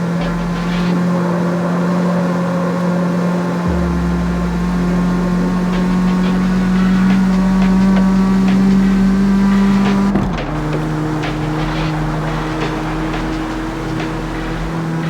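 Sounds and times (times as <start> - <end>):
car engine humming: 0.0 - 15.0
deep rumble: 3.7 - 15.0.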